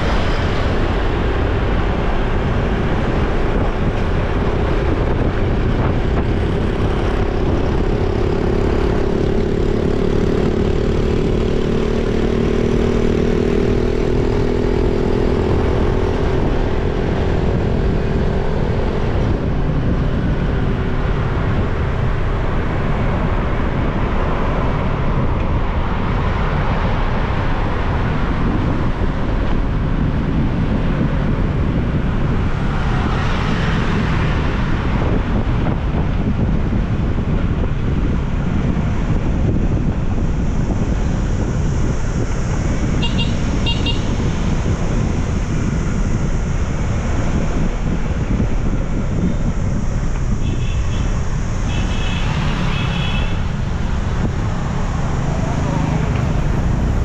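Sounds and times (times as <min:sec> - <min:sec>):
motorbike engine drone: 0:00.0 - 0:57.0
wind rumble on microphone: 0:00.0 - 0:57.0.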